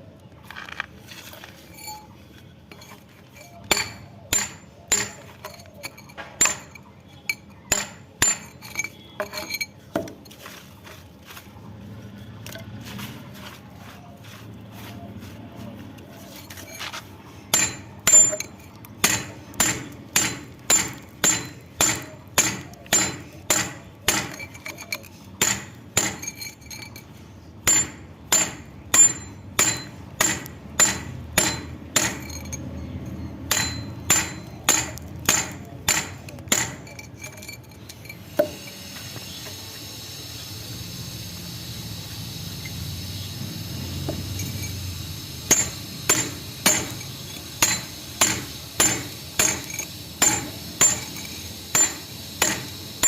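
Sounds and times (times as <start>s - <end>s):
hammer striking metal: 2.7s - 10.2s, 17.5s - 27.0s, 27.6s - 38.6s, 45.5s - 52.8s.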